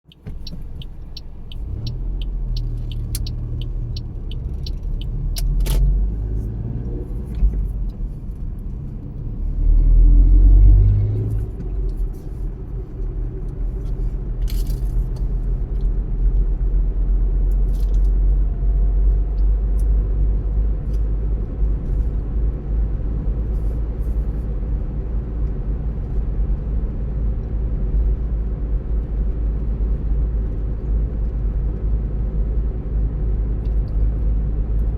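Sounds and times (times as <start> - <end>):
car engine and road rumble: 0.0 - 34.9
fast regular ticking: 0.1 - 5.3
sharp click: 0.1 - 5.9.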